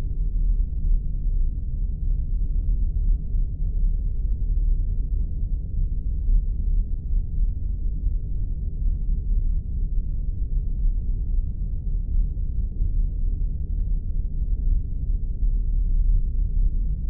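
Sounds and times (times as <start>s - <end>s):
deep rumble: 0.0s - 17.0s
faint steady hum: 0.0s - 17.0s.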